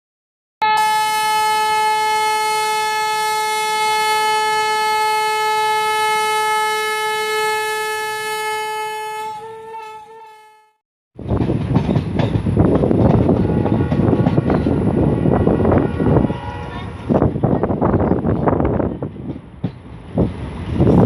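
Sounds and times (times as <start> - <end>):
locomotive air horn blast: 0.6 - 10.8, 13.4 - 14.2, 15.7 - 17.2.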